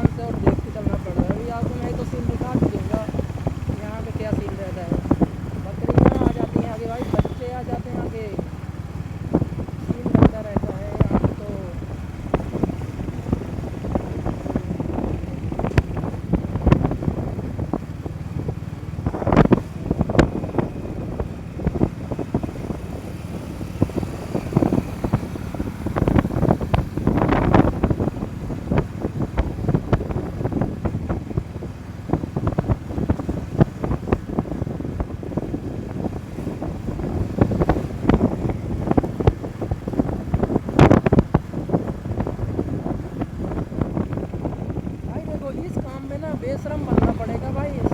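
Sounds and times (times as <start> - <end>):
motorcycle rumble: 0.0 - 47.9
wind buffeting microphone: 0.0 - 47.9.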